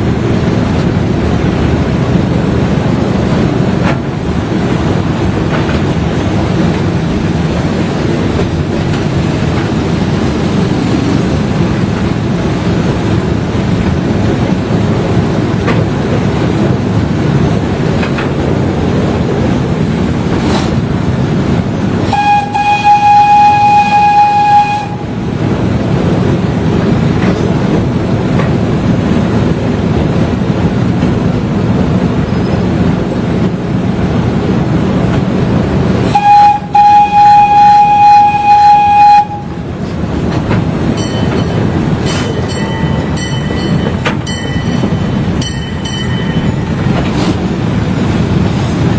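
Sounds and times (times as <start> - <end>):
train rumbling: 0.0 - 48.9
train horn: 22.0 - 25.2, 36.0 - 39.7.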